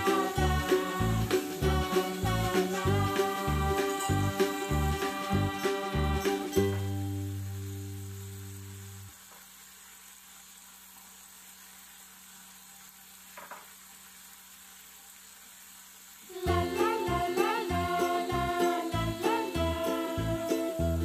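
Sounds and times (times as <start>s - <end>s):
music: 0.0s - 9.1s, 16.3s - 21.0s
squid sizzling in a wok: 0.0s - 21.0s.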